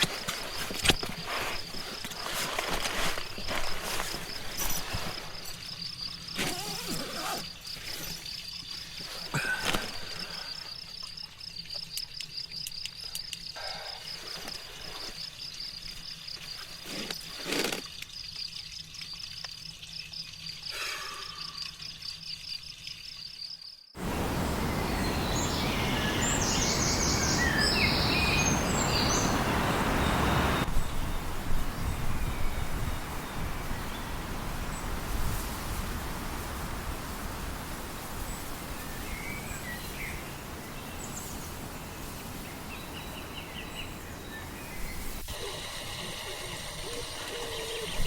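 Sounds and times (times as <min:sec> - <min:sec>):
insect chirping in fast pulses: 0:18.1 - 0:30.7.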